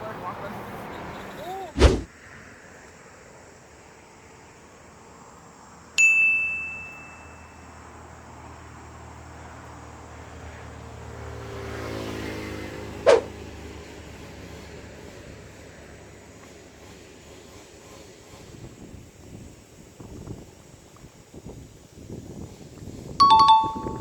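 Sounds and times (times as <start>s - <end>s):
engine hum: 0.0s - 2.5s, 7.7s - 24.0s
metallic ding: 23.2s - 24.0s.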